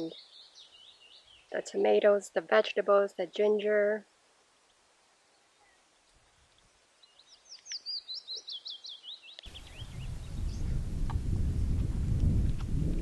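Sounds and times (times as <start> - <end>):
songbird singing: 0.0 - 13.0
low rumbling noise: 9.5 - 13.0.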